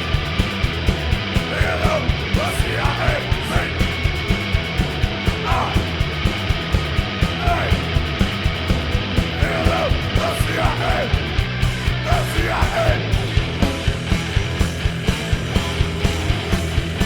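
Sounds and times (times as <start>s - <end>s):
distorted guitar and bass: 0.0s - 17.0s
fast drumbeat: 0.0s - 17.0s
shouted vocals: 1.4s - 4.0s, 5.3s - 6.0s, 7.2s - 8.0s, 9.2s - 11.3s, 11.9s - 13.3s.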